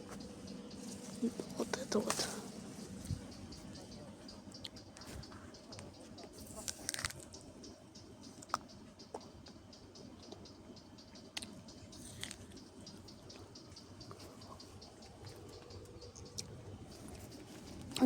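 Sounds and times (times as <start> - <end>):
faint rustling: 0.0 - 3.8.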